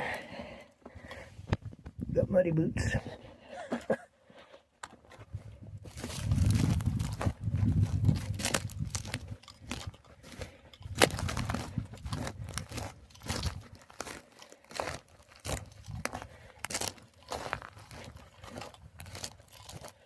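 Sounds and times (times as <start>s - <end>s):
boots crunching on muddy ground: 5.8s - 20.0s.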